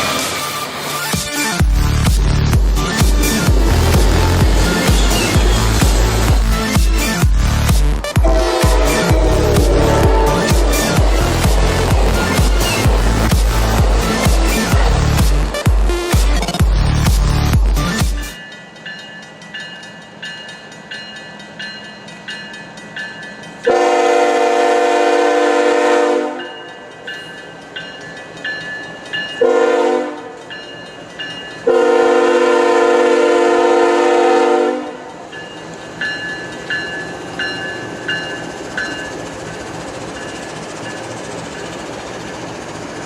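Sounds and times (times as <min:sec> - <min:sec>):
crossing bell ringing: 0:01.8 - 0:15.7, 0:17.9 - 0:24.2, 0:26.3 - 0:32.2, 0:35.0 - 0:42.6
locomotive air horn blasts: 0:08.2 - 0:13.2, 0:23.7 - 0:26.5, 0:29.4 - 0:30.4, 0:31.7 - 0:35.1.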